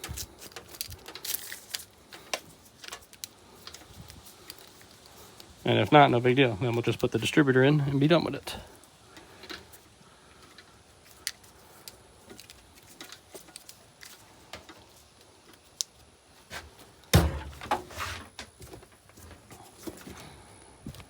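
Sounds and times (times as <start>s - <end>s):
loud thump: 17.2s - 17.9s.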